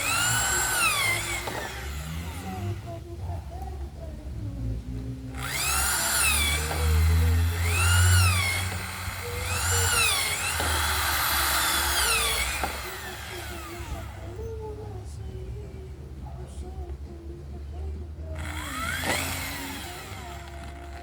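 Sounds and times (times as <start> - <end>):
electric drill whining: 0.0 - 3.8, 5.3 - 14.8, 18.4 - 21.0.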